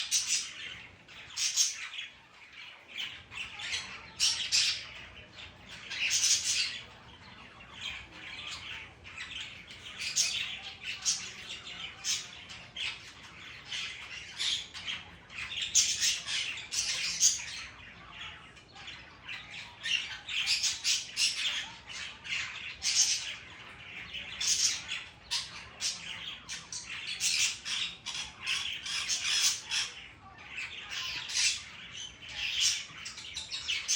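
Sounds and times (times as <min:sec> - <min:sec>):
parrot squawking: 0:00.0 - 0:33.9.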